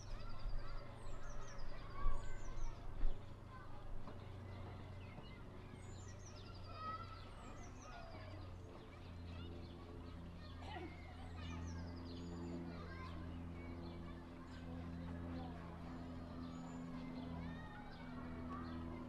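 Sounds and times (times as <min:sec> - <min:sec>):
small songbirds chirping: 0:00.0 - 0:19.0
steady low hum: 0:00.0 - 0:19.0.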